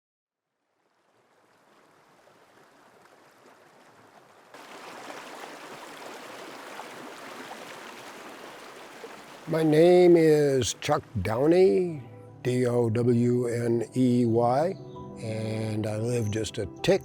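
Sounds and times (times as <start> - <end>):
river water flowing: 0.6 - 12.0.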